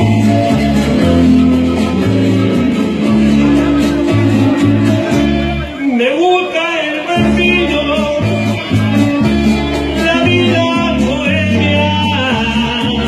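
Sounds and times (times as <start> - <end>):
bass line: 0.0 - 13.0
live latin band music: 0.0 - 13.0
person singing: 5.7 - 13.0.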